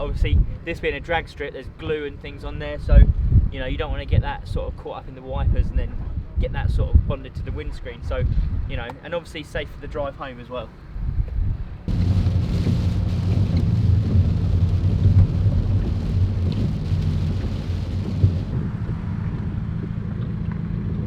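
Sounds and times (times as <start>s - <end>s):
wind or rain noise: 2.9s - 4.6s, 11.0s - 21.0s
vehicle engine humming: 11.9s - 21.0s.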